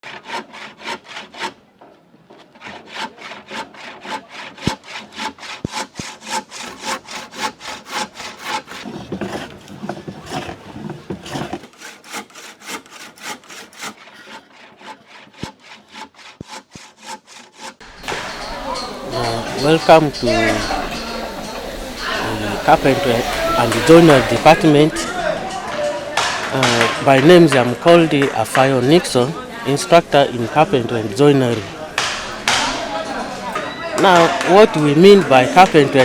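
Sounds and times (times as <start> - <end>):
hand saw cutting wood: 0.0 - 1.6, 2.3 - 17.9.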